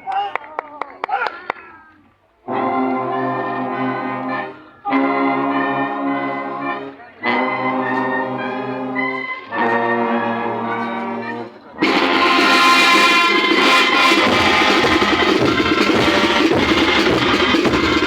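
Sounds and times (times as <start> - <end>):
brass band sustained chords: 2.4 - 18.0
drums and cymbals: 11.8 - 18.0.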